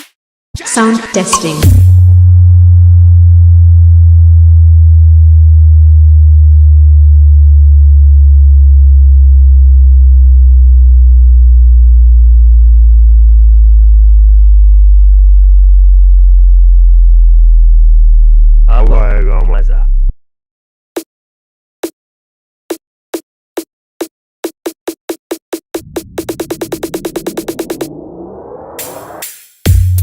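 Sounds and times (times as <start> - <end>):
low bass sine tone sliding down: 2.0 - 20.1, 25.8 - 29.2.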